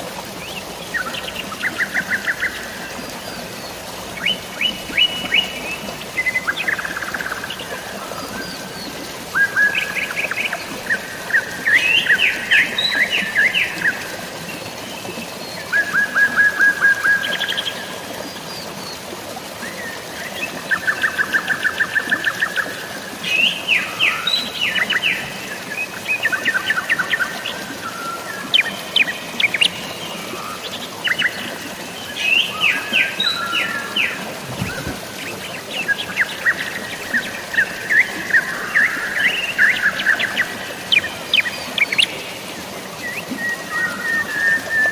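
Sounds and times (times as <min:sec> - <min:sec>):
flowing water: 0:00.0 - 0:44.9
light rain hiss: 0:17.4 - 0:43.5.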